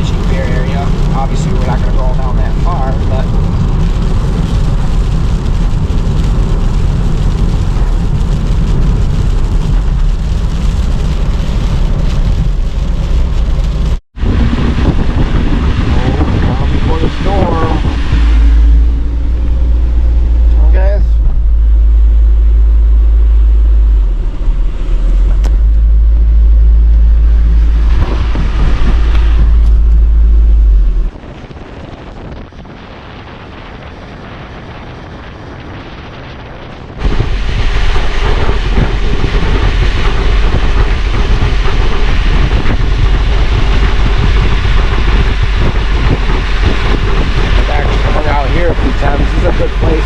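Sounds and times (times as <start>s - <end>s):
road noise: 0.0s - 50.0s
wind buffeting microphone: 0.0s - 50.0s.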